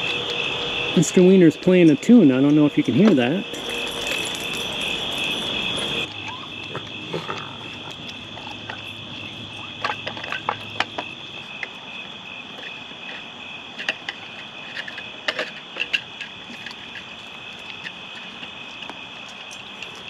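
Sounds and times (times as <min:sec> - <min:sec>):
high-pitched night chorus: 0:00.0 - 0:12.3.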